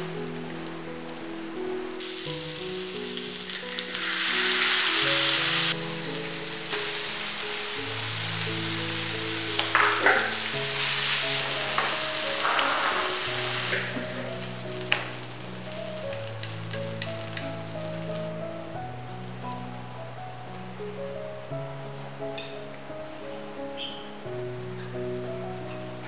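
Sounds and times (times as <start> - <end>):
vegetables sizzling in a wok: 2.0 - 18.4
stirring clicks: 11.5 - 18.0.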